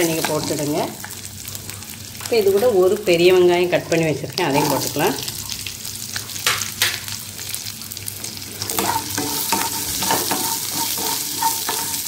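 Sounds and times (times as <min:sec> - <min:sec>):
onions sizzling in hot oil: 0:00.0 - 0:12.0
wooden spatula scraping pan: 0:08.8 - 0:12.0.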